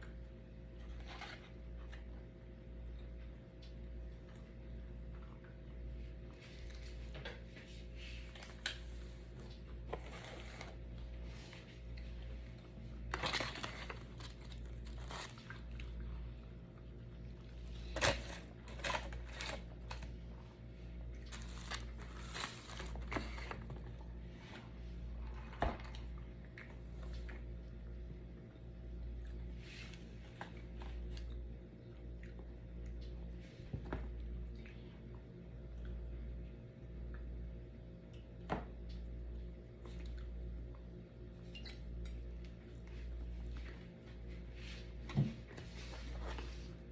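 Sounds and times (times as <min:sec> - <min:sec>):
steady low hum: 0:00.0 - 0:46.9
food wrappers crinkling and tearing: 0:09.4 - 0:10.9, 0:13.0 - 0:16.0, 0:17.5 - 0:20.2, 0:21.1 - 0:23.9.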